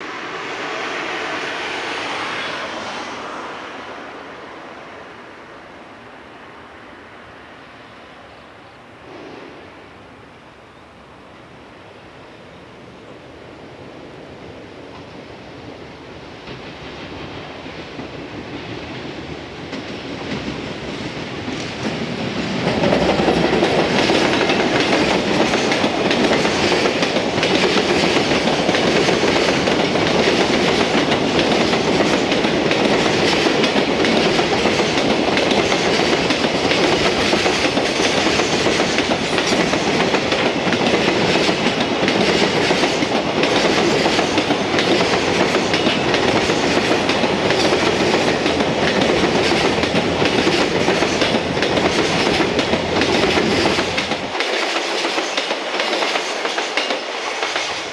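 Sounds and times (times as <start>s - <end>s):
freight train passing: 0.0s - 57.9s
wheels clacking over rail joints: 19.7s - 57.9s.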